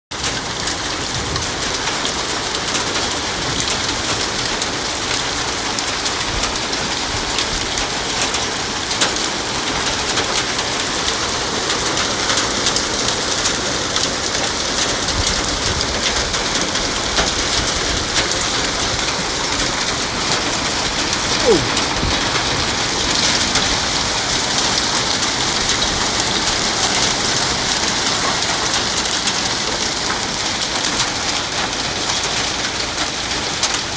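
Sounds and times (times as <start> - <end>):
heavy rain hissing: 15.9 - 30.0.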